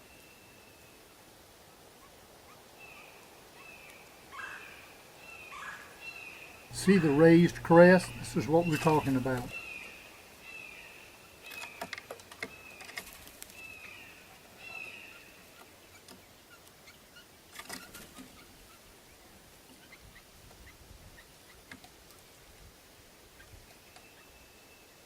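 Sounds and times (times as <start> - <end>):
blue jays calling: 6.7 - 9.5.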